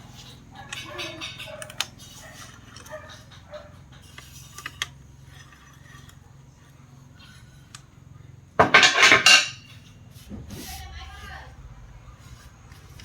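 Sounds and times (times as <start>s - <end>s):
clattering and clinking: 8.6s - 9.8s.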